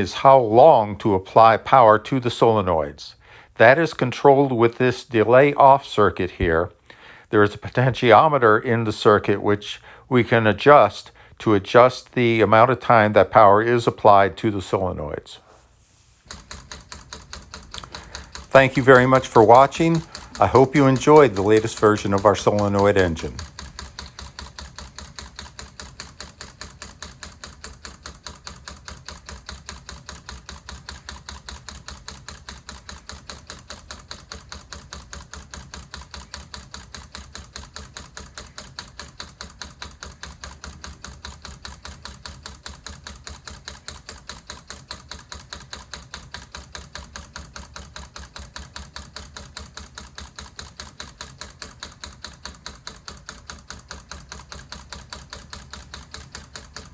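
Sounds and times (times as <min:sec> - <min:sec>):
solenoid engine clacking: 0:16.3 - 0:56.9.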